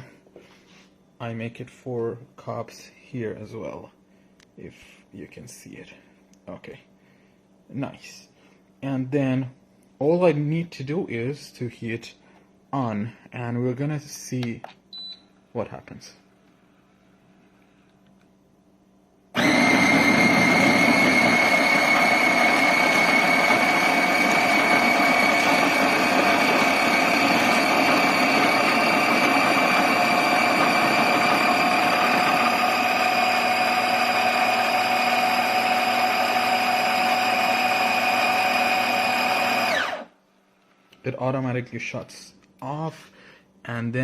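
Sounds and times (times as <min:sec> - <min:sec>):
coffee grinder motor whine: 0:19.4 - 0:40.1.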